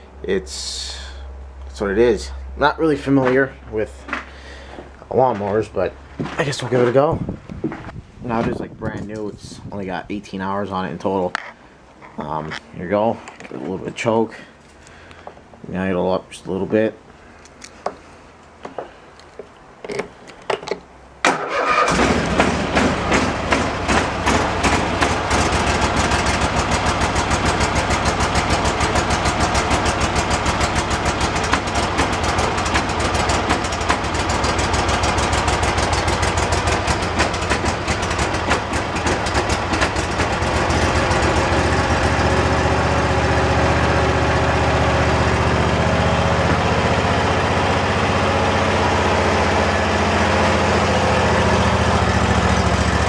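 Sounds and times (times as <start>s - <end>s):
mower engine running: 21.3s - 53.0s.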